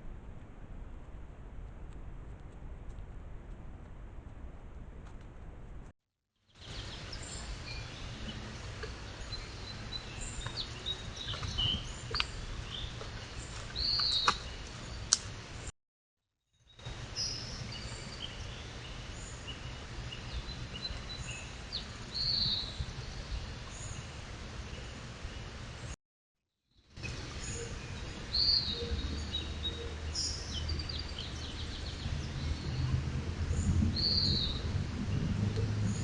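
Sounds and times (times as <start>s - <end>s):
outdoor hiss and hum: 0.0s - 5.9s, 6.6s - 15.7s, 16.8s - 26.0s, 27.0s - 34.0s
birds chirping: 6.6s - 15.7s, 16.8s - 26.0s, 27.0s - 32.9s.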